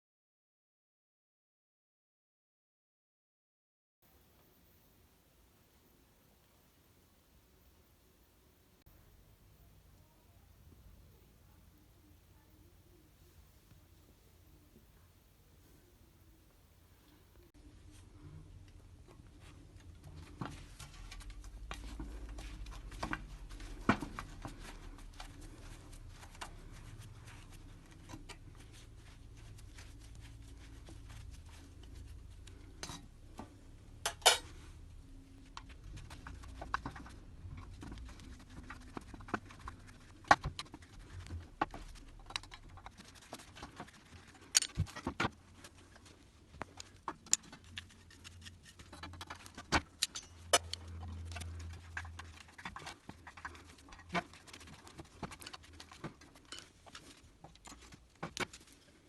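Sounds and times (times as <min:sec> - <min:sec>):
metal objects clinking and knocking: 0:34.0 - 0:34.6, 0:48.7 - 0:51.0.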